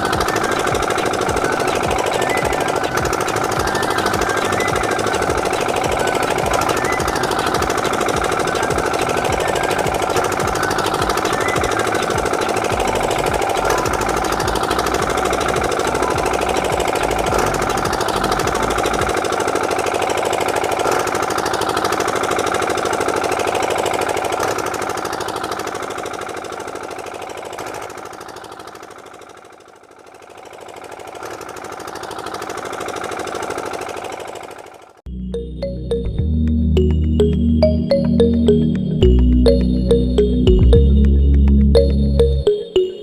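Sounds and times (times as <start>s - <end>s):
small motor rattling buzz: 0.0s - 35.0s.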